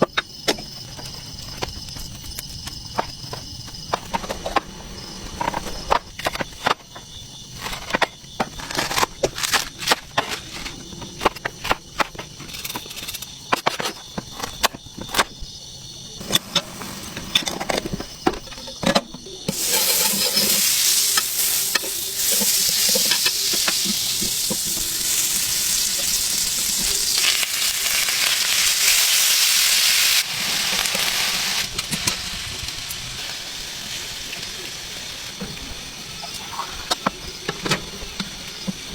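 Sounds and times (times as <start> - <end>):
food sizzling in a hot pan: 19.5 - 35.4.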